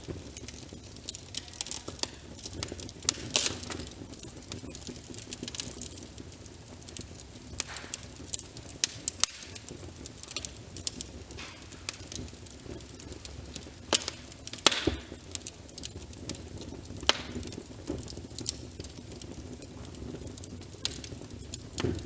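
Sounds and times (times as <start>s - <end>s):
rain hiss: 0.0s - 22.0s
wood fire crackling: 0.0s - 22.0s.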